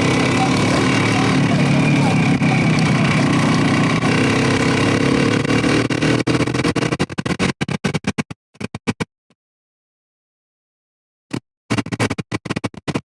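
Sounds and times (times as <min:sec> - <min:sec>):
motorcycle engine and wind: 0:00.0 - 0:08.1.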